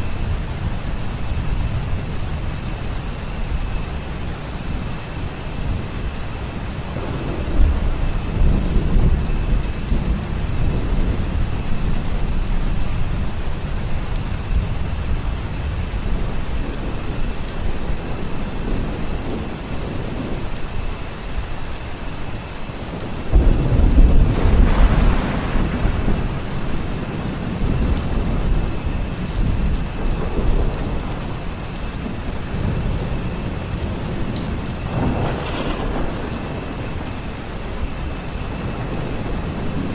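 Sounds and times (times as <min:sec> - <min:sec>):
steady rain: 0:00.0 - 0:39.9
thunder rumbling: 0:00.0 - 0:39.9
sharp thunderclap: 0:23.3 - 0:31.3, 0:34.8 - 0:37.0.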